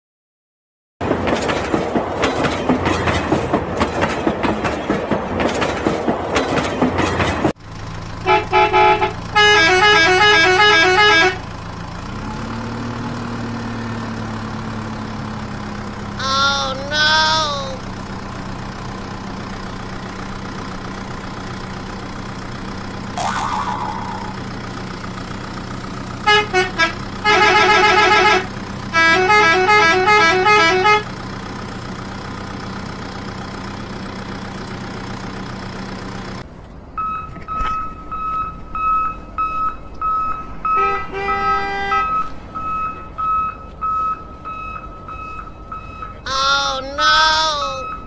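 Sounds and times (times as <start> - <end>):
toy engine hum: 23.2 - 24.5
warbling electronic horn melody: 23.2 - 24.6.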